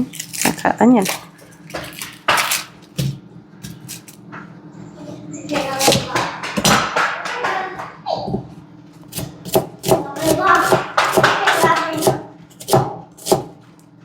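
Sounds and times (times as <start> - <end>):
knife chopping on cutting board: 5.6 - 7.6, 9.1 - 13.6.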